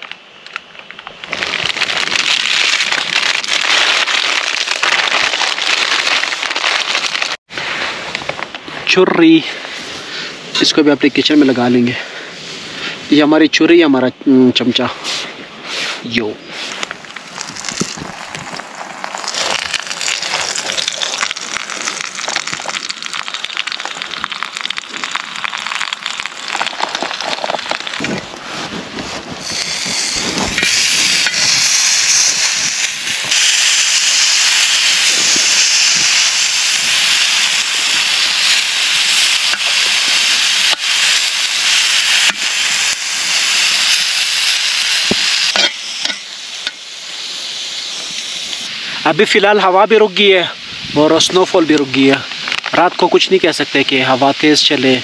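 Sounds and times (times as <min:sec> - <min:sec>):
camping stove hissing: 0:15.8 - 0:28.6, 0:29.2 - 0:55.0.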